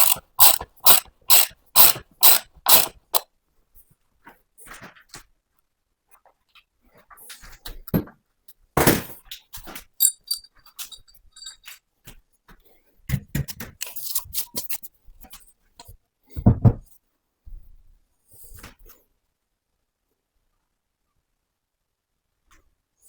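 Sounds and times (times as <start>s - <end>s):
knocks and handling sounds: 9.7s - 11.8s, 13.1s - 15.4s
light metallic clinks: 10.0s - 11.8s.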